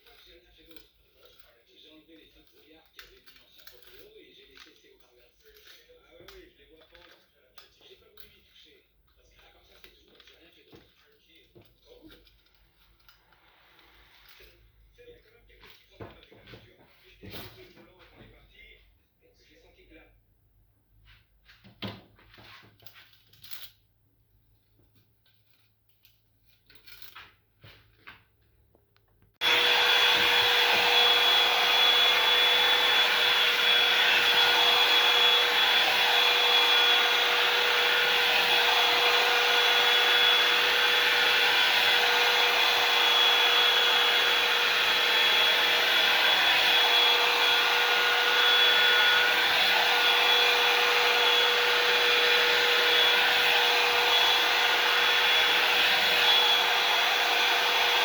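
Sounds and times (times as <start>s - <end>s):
hair dryer running: 29.4s - 58.0s.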